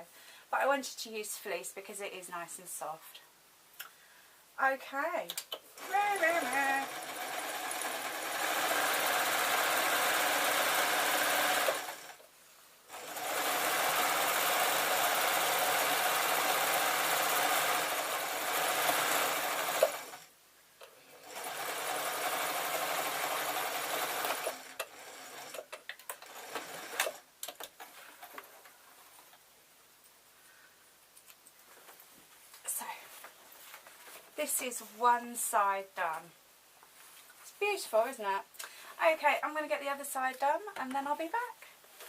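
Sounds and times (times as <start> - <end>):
sewing machine stitching: 5.8 - 12.2, 12.9 - 20.3, 21.1 - 27.6.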